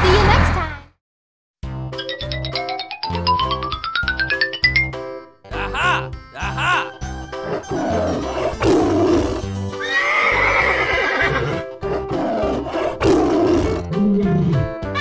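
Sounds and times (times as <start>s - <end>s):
upbeat children's music: 1.6s - 9.8s
horse whinny: 7.5s - 14.6s.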